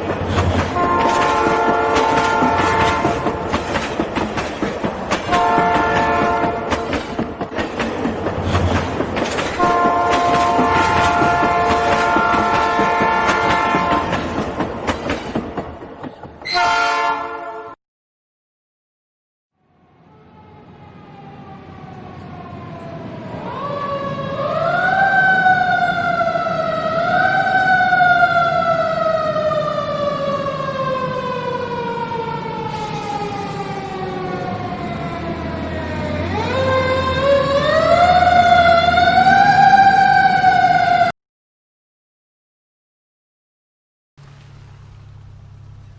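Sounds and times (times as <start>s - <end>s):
low traffic rumble: 0.0s - 16.5s, 44.2s - 45.9s
emergency vehicle siren wailing: 0.7s - 3.5s, 19.7s - 41.1s.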